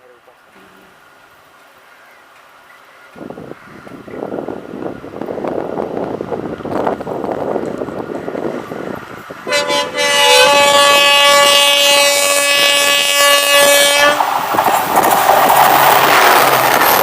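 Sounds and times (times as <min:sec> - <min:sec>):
passing train rushing: 0:02.4 - 0:17.0
locomotive horn: 0:09.4 - 0:14.3.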